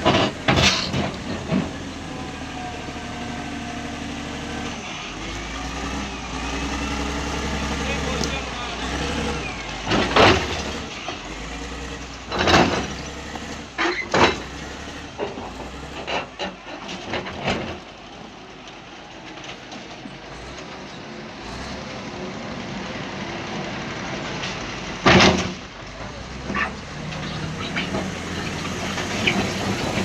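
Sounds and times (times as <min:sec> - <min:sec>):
sharp knocks and clanks: 0:00.0 - 0:01.7, 0:09.8 - 0:10.9, 0:12.3 - 0:17.8, 0:25.0 - 0:25.6
heavy machinery engine running: 0:00.0 - 0:30.0.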